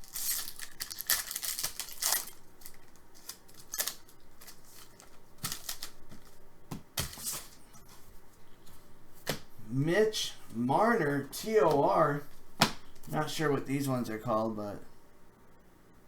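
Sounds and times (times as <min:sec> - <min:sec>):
cards sliding and rustling: 0:00.0 - 0:09.5
cards clicking and tapping: 0:01.1 - 0:07.6, 0:08.7 - 0:09.5, 0:12.6 - 0:13.2.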